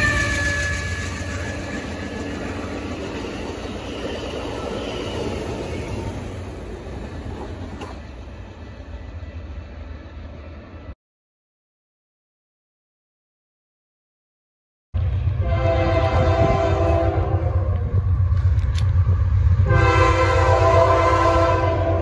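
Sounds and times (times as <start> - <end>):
train rumbling past: 0.0 - 11.0, 15.0 - 22.0.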